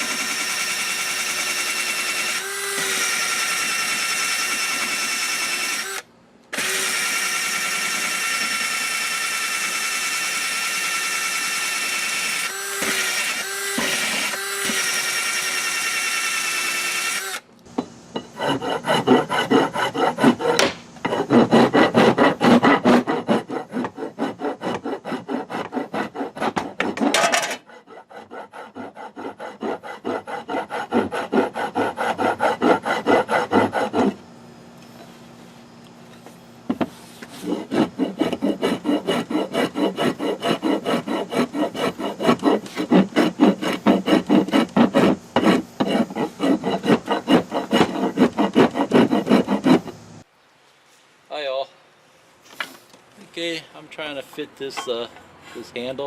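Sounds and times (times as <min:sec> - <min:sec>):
power tool motor whining: 0:00.0 - 0:17.5
hand file rasping wood: 0:18.3 - 0:34.2, 0:37.2 - 0:50.0.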